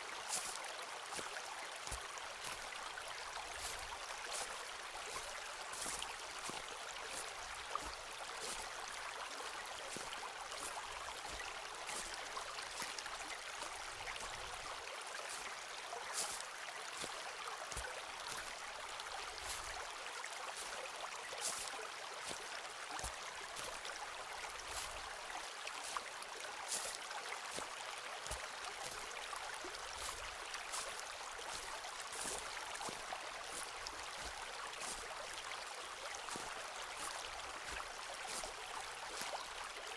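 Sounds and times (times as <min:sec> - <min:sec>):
footsteps on dry leaves and twigs: 0:00.3 - 0:09.2, 0:16.2 - 0:17.1, 0:21.4 - 0:22.4, 0:23.0 - 0:25.1, 0:26.7 - 0:27.7, 0:28.3 - 0:35.2, 0:36.2 - 0:39.5.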